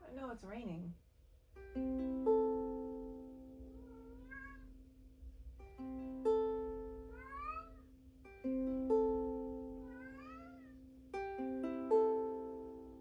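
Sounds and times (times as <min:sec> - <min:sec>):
ukulele strummed: 0:01.5 - 0:03.8, 0:05.1 - 0:13.0
cat meowing: 0:03.6 - 0:04.8, 0:07.0 - 0:07.9, 0:09.8 - 0:10.8.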